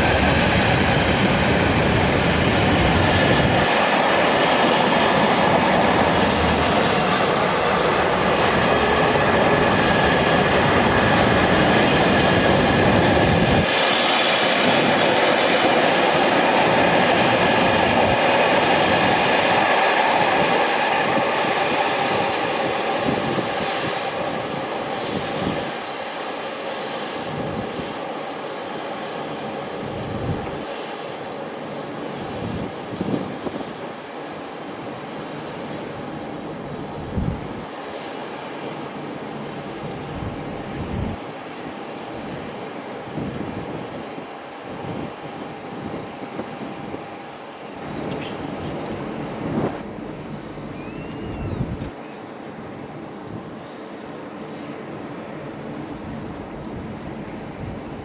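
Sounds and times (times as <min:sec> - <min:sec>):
low train rumble: 0:00.0 - 0:58.0
train wheel and running noise: 0:00.0 - 0:58.0.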